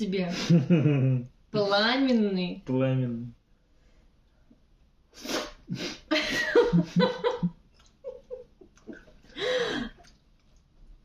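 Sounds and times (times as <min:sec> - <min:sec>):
people laughing: 0:00.4 - 0:01.2, 0:06.2 - 0:07.5.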